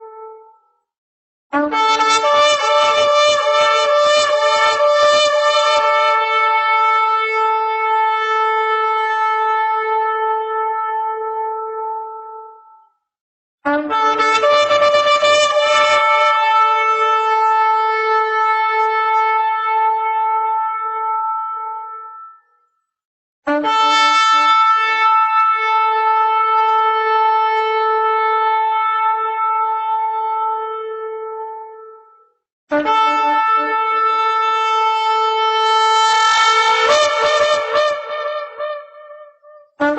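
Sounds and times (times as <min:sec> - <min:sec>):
shofar blast: 0:01.5 - 0:12.2, 0:13.7 - 0:22.4, 0:23.5 - 0:32.0, 0:32.7 - 0:39.9.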